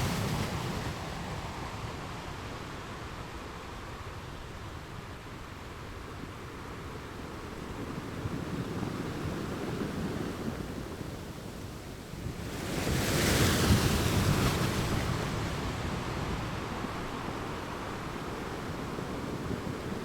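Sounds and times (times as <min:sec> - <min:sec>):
wave crashing on rocks: 0:00.0 - 0:01.7
low rumbling surf: 0:00.0 - 0:20.0.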